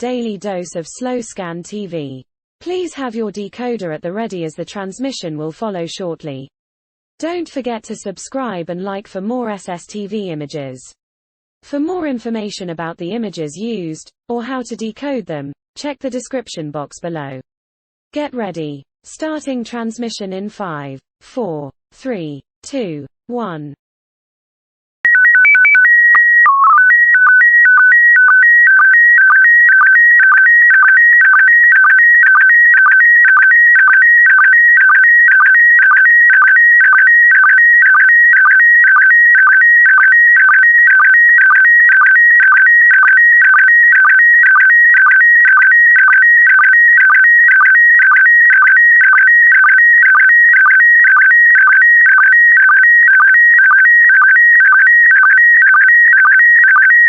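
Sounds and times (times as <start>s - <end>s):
warbling electronic signal tones: 25.1s - 57.0s.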